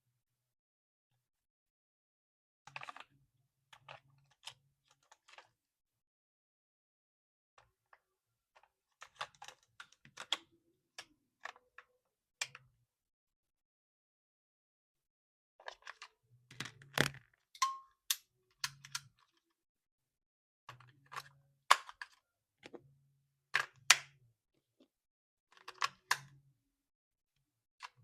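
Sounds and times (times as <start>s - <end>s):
plastic clicks and taps: 16.5s - 19.1s.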